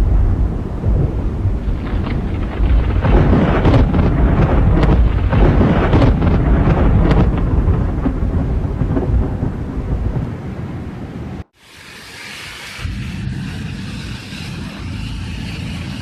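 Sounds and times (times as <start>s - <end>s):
thunder rumbling and crackling: 0.0s - 11.5s.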